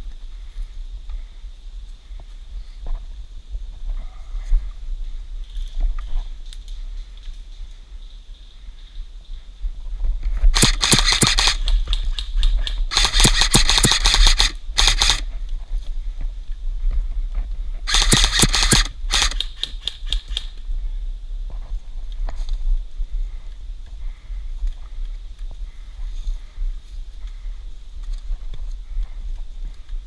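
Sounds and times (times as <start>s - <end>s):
airsoft gun firing bursts: 10.5s - 15.3s, 17.9s - 20.5s.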